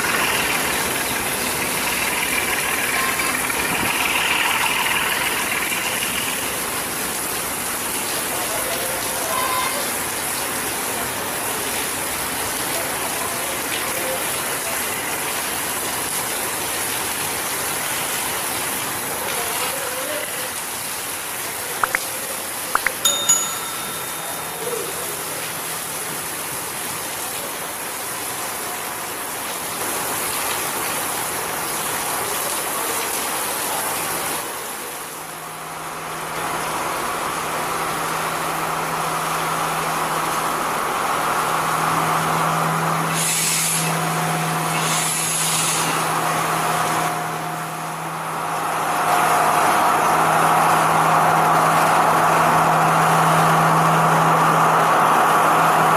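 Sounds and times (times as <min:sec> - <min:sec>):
train engine hum: 0:00.0 - 0:17.8, 0:23.0 - 0:29.4, 0:31.3 - 0:55.9
heavy rain pouring: 0:00.0 - 0:55.9
bell-like ring: 0:22.8 - 0:25.5.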